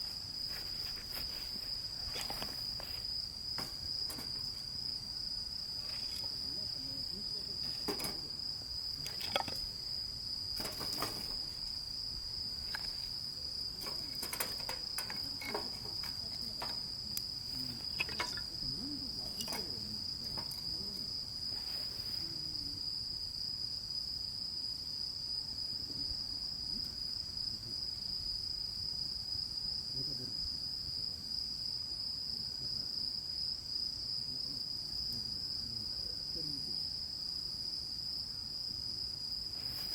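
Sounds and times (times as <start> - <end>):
crickets trilling: 0.0 - 39.9
clicks and knocks: 13.8 - 16.8, 17.9 - 18.5.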